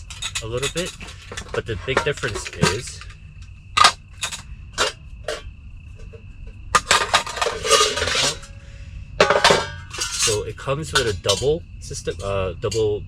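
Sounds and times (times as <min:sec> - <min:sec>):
metal pans clinking together: 0:00.0 - 0:03.1, 0:06.8 - 0:08.6, 0:09.2 - 0:11.5.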